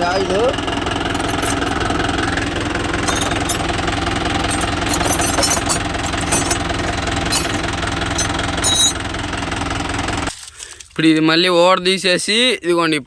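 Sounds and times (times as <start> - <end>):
tractor diesel engine running: 0.0 - 10.4.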